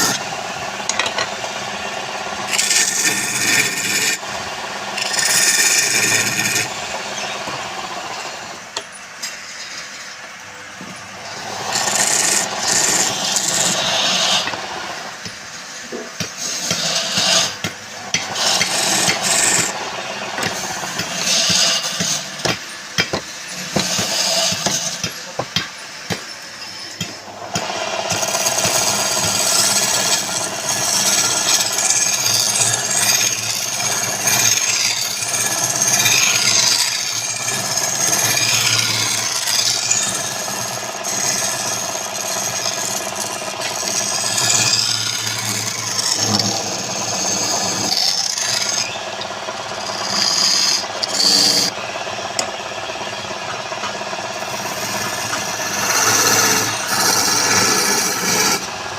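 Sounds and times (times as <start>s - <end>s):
lathe tool scraping spinning wood: 0.0s - 58.9s
steady motor hum: 0.0s - 58.9s.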